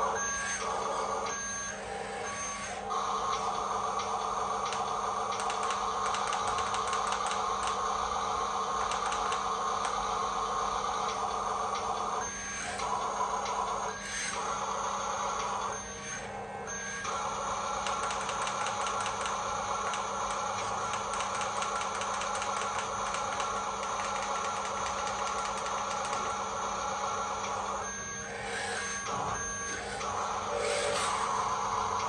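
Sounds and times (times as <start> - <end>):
toy truck motor whirring: 3.0 - 11.1, 16.7 - 32.0.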